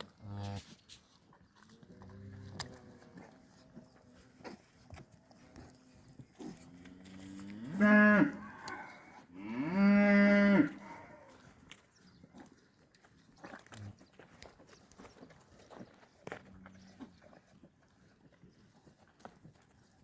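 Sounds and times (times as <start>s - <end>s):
cattle mooing: 6.7s - 11.4s.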